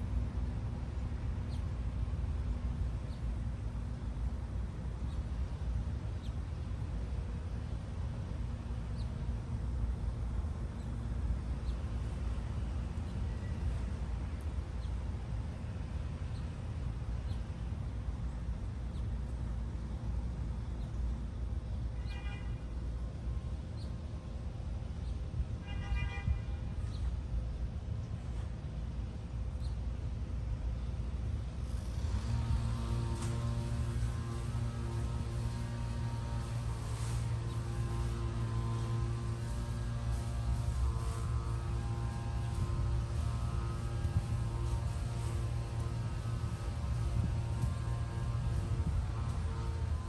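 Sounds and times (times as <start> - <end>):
steady low rumble: 26.4 - 50.0
low hum: 31.0 - 50.0
buzzy note: 32.1 - 50.0.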